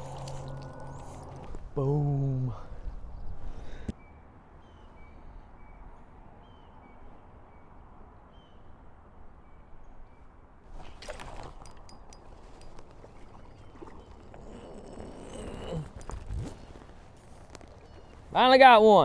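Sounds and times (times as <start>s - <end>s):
rustling: 10.8s - 18.4s.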